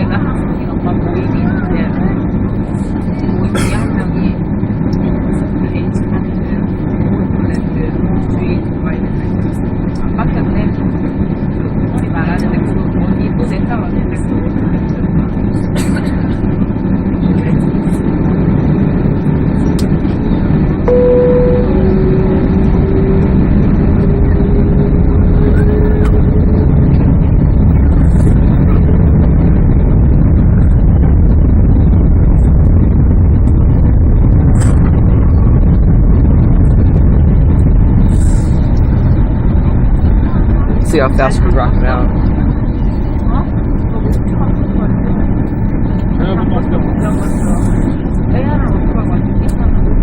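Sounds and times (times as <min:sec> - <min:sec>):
aircraft cabin rumble: 0:00.0 - 0:50.0
faint whine: 0:00.0 - 0:50.0
ventilation noise: 0:00.0 - 0:50.0
brief tone: 0:20.9 - 0:26.7.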